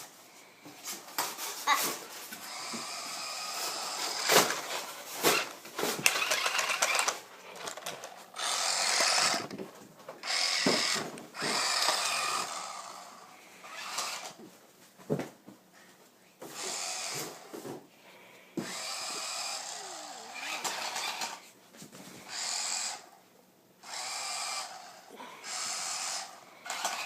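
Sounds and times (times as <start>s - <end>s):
toy car electric motors whining: 1.1s - 9.6s, 10.2s - 14.4s, 16.5s - 17.5s, 18.6s - 21.5s, 22.2s - 23.2s, 23.8s - 27.0s
toy car bumping into things: 3.6s - 9.6s, 10.2s - 12.7s.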